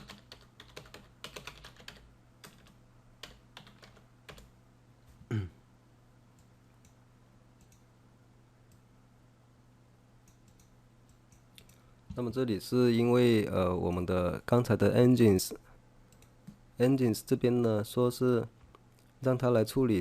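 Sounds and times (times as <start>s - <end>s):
typing on computer keyboard: 0.0s - 4.5s
faint low hum: 0.0s - 20.0s
short falling vocal sound: 5.3s - 5.6s.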